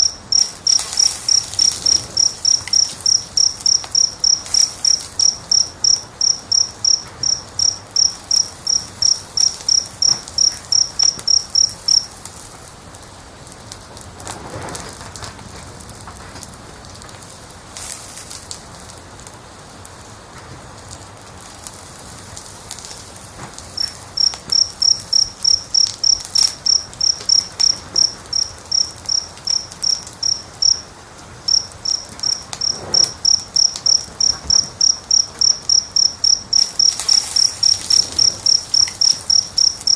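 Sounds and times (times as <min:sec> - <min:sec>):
cricket chirping: 0:00.0 - 0:12.2, 0:23.7 - 0:39.9
wood fire crackling: 0:00.0 - 0:39.9.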